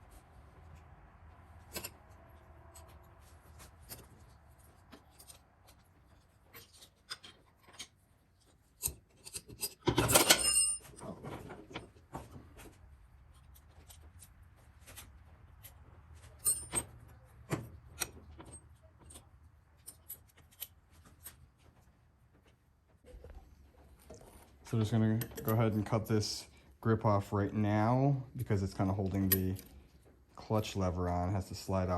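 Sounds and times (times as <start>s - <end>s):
tools and metal parts clicking: 1.6s - 3.0s, 3.6s - 12.0s, 15.6s - 21.4s, 24.0s - 26.0s, 29.0s - 29.9s.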